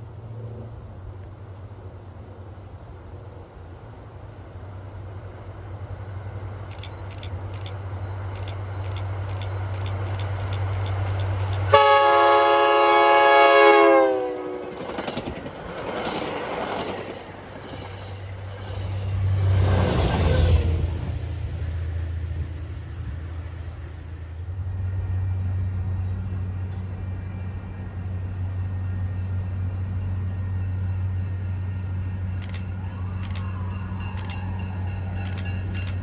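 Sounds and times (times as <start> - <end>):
rail and wheel noise: 0.0 - 36.0
train rumbling: 0.0 - 36.0
train horn multi-chime: 11.7 - 14.4.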